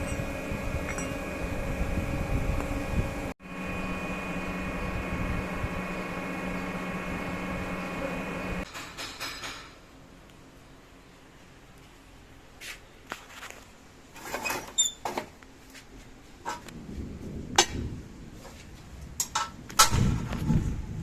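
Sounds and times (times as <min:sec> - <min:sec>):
knocks and clanks: 0:08.7 - 0:09.8, 0:19.2 - 0:20.6.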